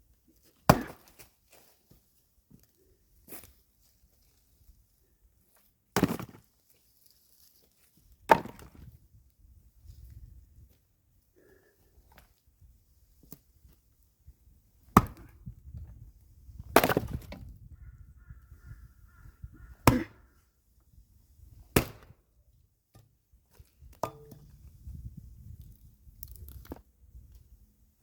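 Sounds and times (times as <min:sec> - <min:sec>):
axe chopping logs: 0:00.7 - 0:01.3, 0:06.0 - 0:06.4, 0:08.3 - 0:08.9, 0:14.9 - 0:15.4, 0:16.6 - 0:17.4, 0:19.8 - 0:20.2, 0:21.7 - 0:22.2, 0:24.0 - 0:24.5.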